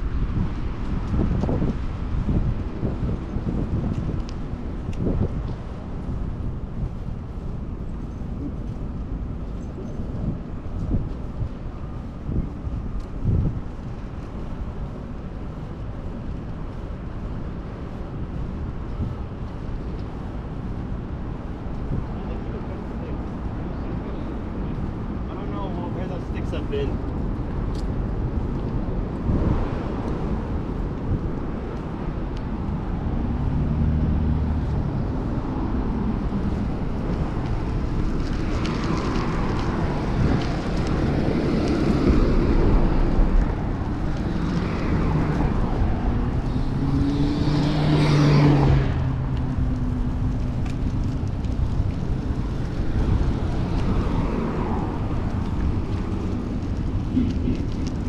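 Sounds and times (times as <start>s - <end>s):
motor vehicles passing: 0.0s - 58.0s
wind and road noise: 0.0s - 58.0s.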